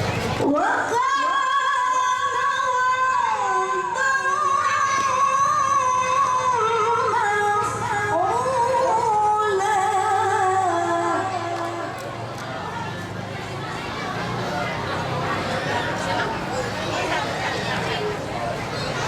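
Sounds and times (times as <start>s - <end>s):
woman reciting melodically: 0.4s - 12.0s.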